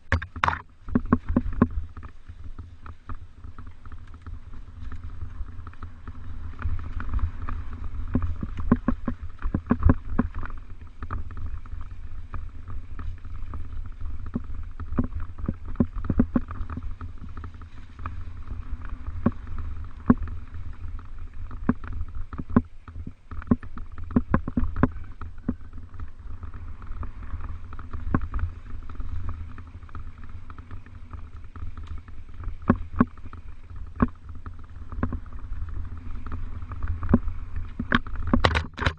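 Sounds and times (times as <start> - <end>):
bike clicks and rattles: 0.0 - 38.9
wind on microphone: 0.0 - 38.9.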